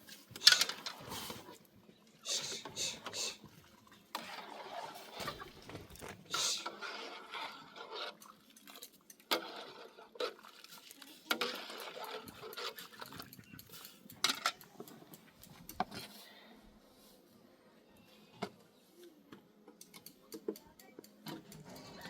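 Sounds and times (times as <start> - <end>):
dishes and utensils clattering: 0.3 - 1.5, 11.2 - 16.2
scraping of dishes: 0.4 - 1.5.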